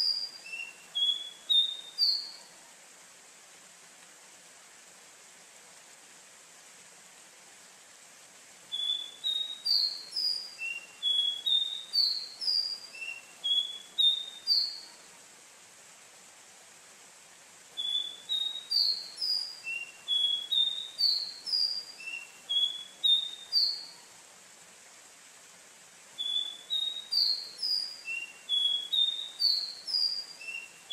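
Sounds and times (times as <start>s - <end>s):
bird whistling: 0.0s - 2.4s, 8.7s - 14.8s, 17.8s - 23.9s, 26.2s - 30.9s
faint steady hiss: 0.0s - 30.9s.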